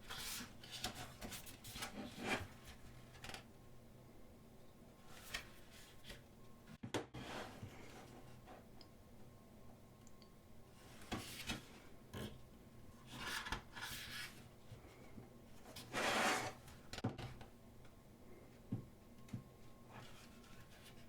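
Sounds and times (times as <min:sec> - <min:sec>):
paper sliding and rubbing: 0:15.8 - 0:16.6.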